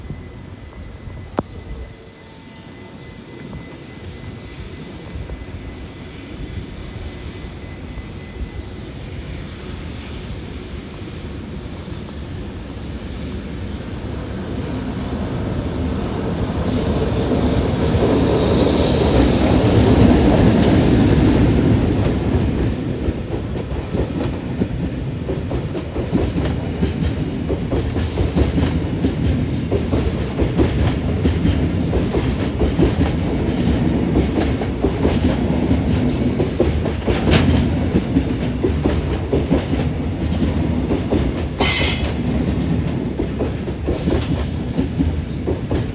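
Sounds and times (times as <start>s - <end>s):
electric locomotive passing: 0.0s - 45.9s
high wheel squeals: 26.2s - 27.7s, 28.7s - 32.4s, 36.1s - 37.0s, 41.6s - 45.7s.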